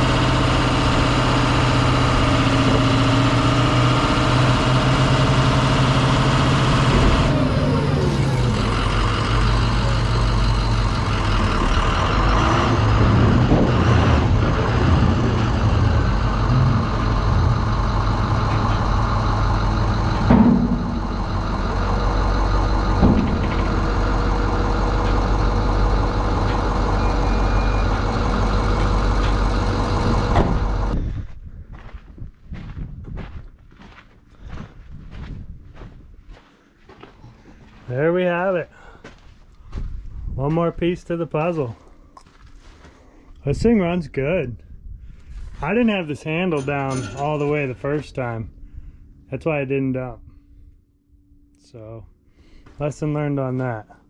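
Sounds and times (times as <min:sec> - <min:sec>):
diesel truck engine running: 0:00.0 - 0:32.0, 0:45.2 - 0:50.7
knocks: 0:20.2 - 0:21.1, 0:22.9 - 0:23.8.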